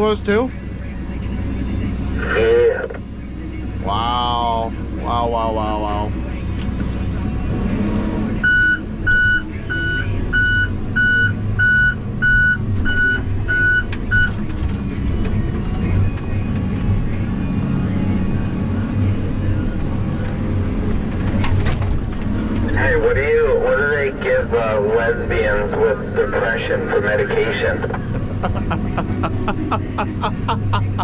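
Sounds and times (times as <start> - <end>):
low engine running: 0.6 - 31.0
back-up alarm beeping: 8.4 - 14.3.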